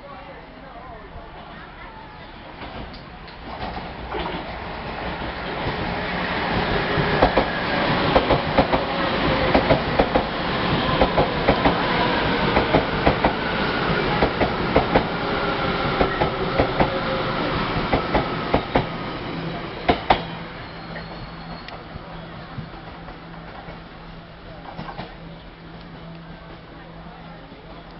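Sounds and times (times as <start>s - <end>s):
train wheels clacking over rail joints: 6.5s - 10.3s, 10.9s - 11.8s, 12.5s - 13.4s, 17.8s - 18.9s, 19.9s - 20.3s.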